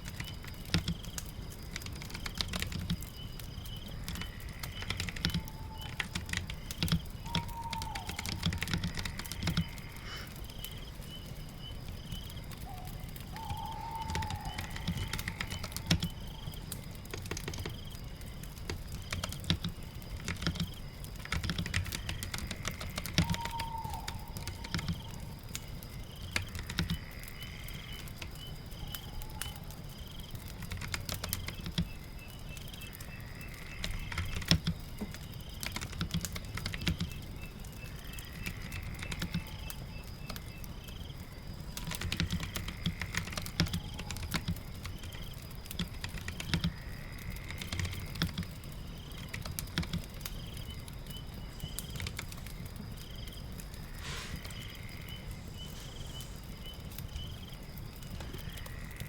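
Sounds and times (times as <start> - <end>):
fire crackling: 0.0 - 59.0
rain: 0.0 - 59.0
computer keyboard typing: 0.1 - 3.2, 4.0 - 9.8, 13.4 - 16.2, 18.7 - 25.1, 26.3 - 27.0, 30.6 - 32.0, 33.8 - 37.2, 38.7 - 40.4, 41.7 - 46.8, 47.5 - 50.6.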